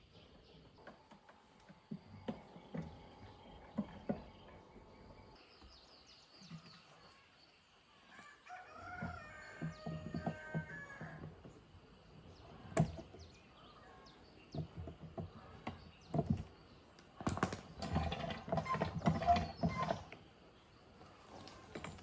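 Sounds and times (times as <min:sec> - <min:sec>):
hard objects knocking and clattering: 0:17.2 - 0:20.0.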